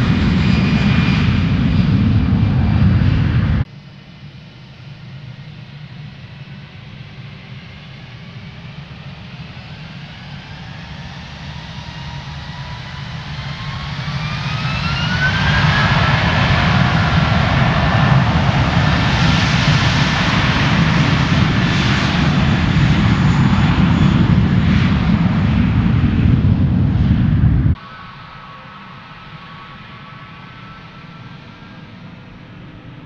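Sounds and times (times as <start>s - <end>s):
jet engines spooling up: 11.8s - 33.0s.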